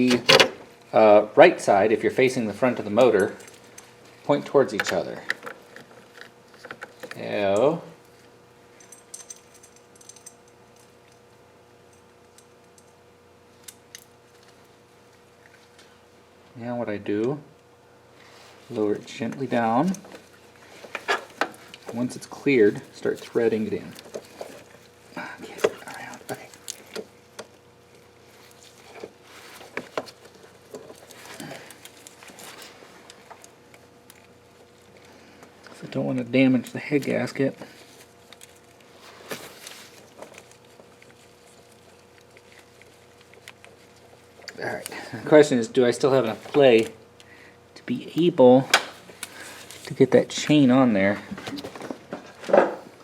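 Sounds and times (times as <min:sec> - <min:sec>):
faint steady hum: 0:00.0 - 0:53.0
metallic clicks of engine parts: 0:08.7 - 0:11.2.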